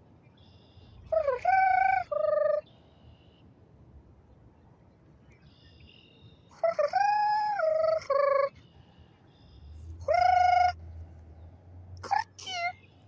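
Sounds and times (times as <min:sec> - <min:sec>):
person imitating bird calls: 0:01.0 - 0:02.8, 0:06.5 - 0:08.7, 0:09.9 - 0:11.0, 0:12.0 - 0:12.9.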